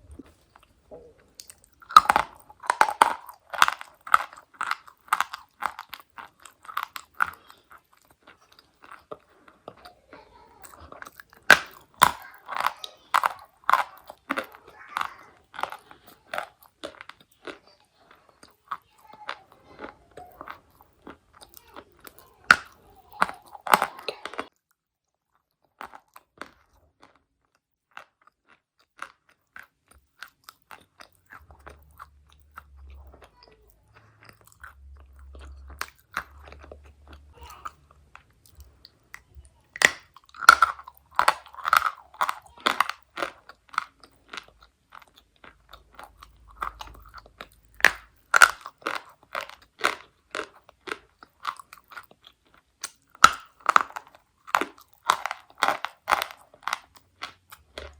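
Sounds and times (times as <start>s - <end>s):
chalk crunching while chewed: 0.0s - 57.9s.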